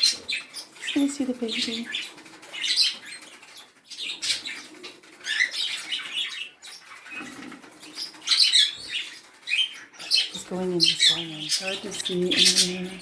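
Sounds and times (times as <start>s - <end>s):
cockatiel scrabbling and fluttering: 1.8s - 10.4s.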